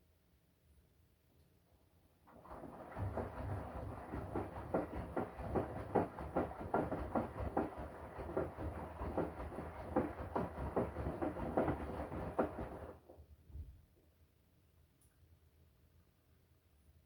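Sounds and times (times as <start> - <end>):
washing machine drum turning: 2.5 - 13.0.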